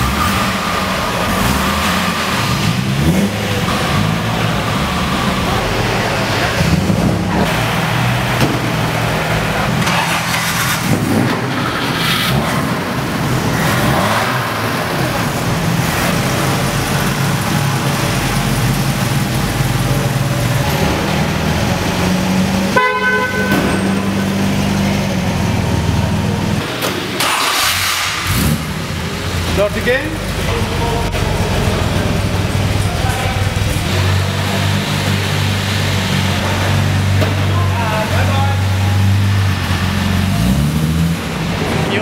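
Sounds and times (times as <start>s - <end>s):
car engines idling: 0.0s - 42.0s
car horn: 22.7s - 24.3s.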